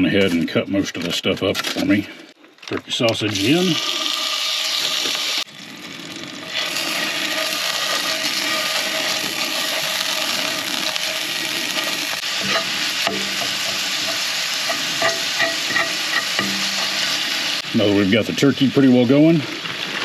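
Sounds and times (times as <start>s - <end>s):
sausage sizzling in oil: 3.3s - 20.0s
knocks against pan: 12.4s - 16.9s.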